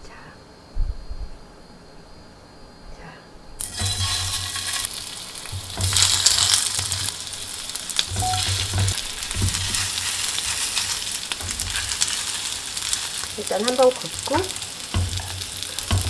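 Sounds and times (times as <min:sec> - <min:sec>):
food sizzling in hot oil: 0:03.6 - 0:16.0
skewers clicking on pan: 0:03.6 - 0:16.0.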